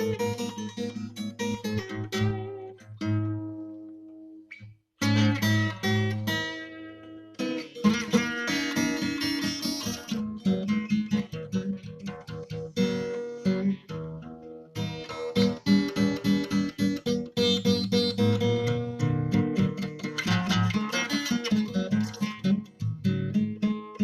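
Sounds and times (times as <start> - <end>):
acoustic guitar playing: 0.0 - 24.0.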